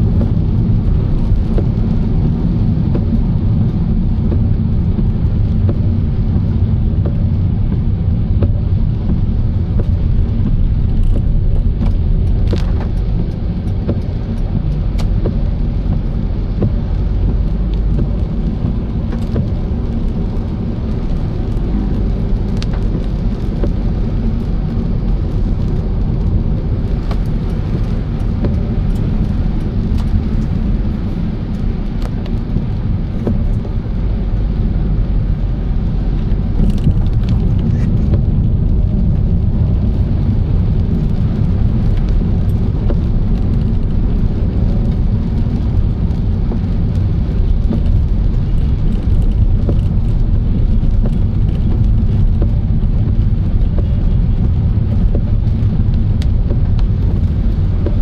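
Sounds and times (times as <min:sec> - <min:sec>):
car engine and road noise: 0:00.0 - 0:58.0
light ticks: 0:08.4 - 0:20.5, 0:21.1 - 0:30.6, 0:36.2 - 0:43.8.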